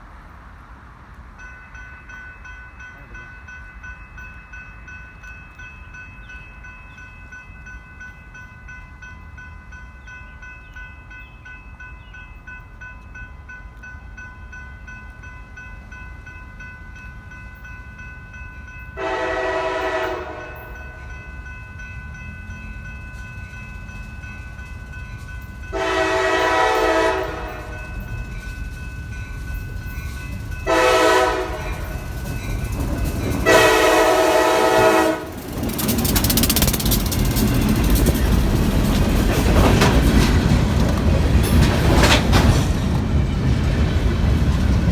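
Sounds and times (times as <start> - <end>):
train rumbling: 0.0 - 44.9
crossing bell ringing: 1.3 - 44.9
train horn blasts: 19.0 - 21.0, 25.7 - 28.0, 30.6 - 32.0, 33.4 - 35.4.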